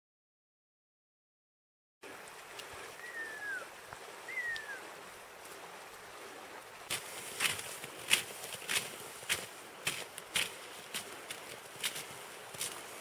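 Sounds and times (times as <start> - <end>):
bird whistled calls: 3.0 - 4.9
boots crunching through snow: 6.9 - 13.0.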